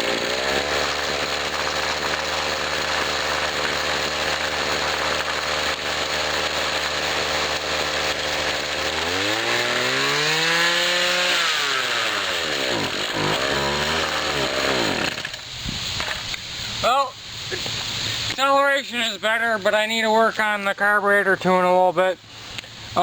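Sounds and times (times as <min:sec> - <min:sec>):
string trimmer engine idling and revving: 0:00.0 - 0:16.2.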